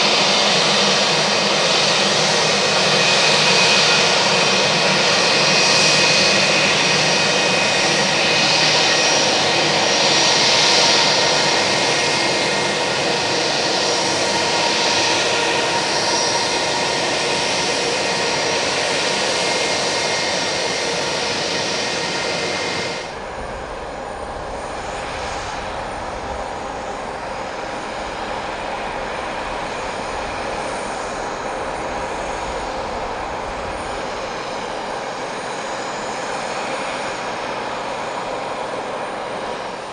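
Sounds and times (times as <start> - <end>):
jet engines running: 0.0 - 39.9
low wind rumble: 7.0 - 36.7.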